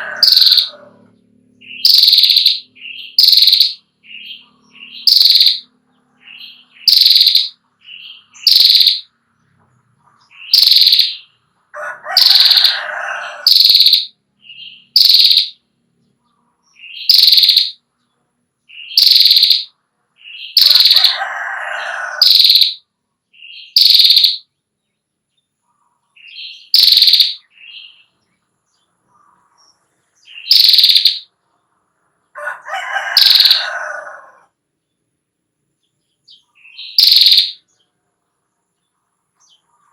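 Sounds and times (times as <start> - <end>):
bird dry rattling trill: 0.0 - 0.8, 1.8 - 3.8, 4.9 - 5.7, 6.8 - 7.6, 8.4 - 9.1, 10.5 - 11.2, 12.1 - 14.1, 14.9 - 15.6, 17.0 - 17.8, 18.9 - 19.7, 20.5 - 21.2, 22.2 - 22.8, 23.7 - 24.4, 26.7 - 27.4, 30.4 - 31.3, 33.0 - 33.9, 36.8 - 37.6.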